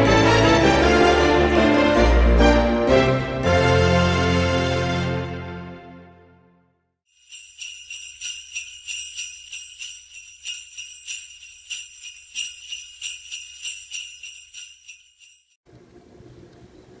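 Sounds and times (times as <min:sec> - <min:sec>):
sleigh bells jingling: 0:00.0 - 0:04.4, 0:07.1 - 0:15.6.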